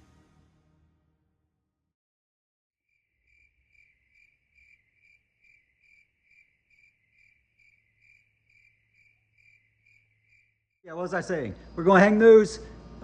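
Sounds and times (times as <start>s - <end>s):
cricket chirping: 2.9s - 10.8s
low steady hum: 10.9s - 13.0s.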